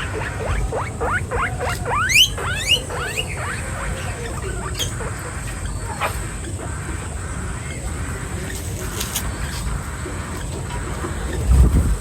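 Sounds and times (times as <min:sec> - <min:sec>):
guinea pig wheeking: 0:00.0 - 0:12.0.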